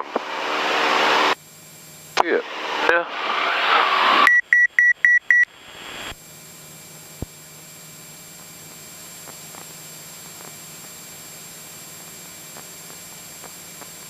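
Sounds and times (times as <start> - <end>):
short electronic beeps: 4.2 - 5.5.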